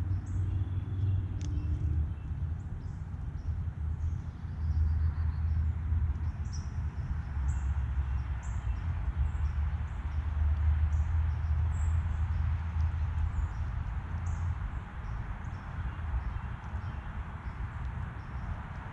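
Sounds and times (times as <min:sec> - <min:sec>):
songbirds chirping: 0:00.0 - 0:18.9
steady low rumble: 0:00.0 - 0:18.9.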